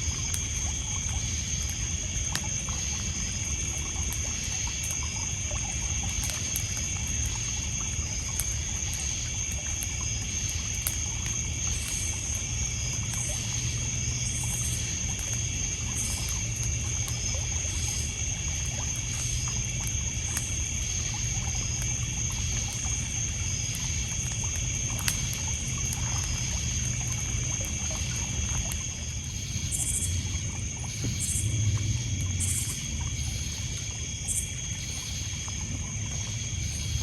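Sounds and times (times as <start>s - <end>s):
campfire crackling: 0.0s - 37.0s
crickets and insects chirping: 0.0s - 37.0s.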